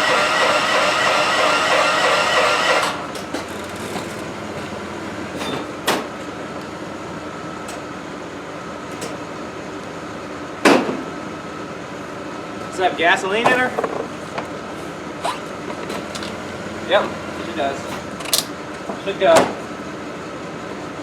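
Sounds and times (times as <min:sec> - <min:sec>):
engine cranked by starter: 0:00.0 - 0:08.0, 0:12.5 - 0:21.0
faint steady engine hum: 0:00.0 - 0:21.0
sharp knocks and clanks: 0:00.4 - 0:06.3, 0:10.6 - 0:11.1, 0:13.4 - 0:19.8.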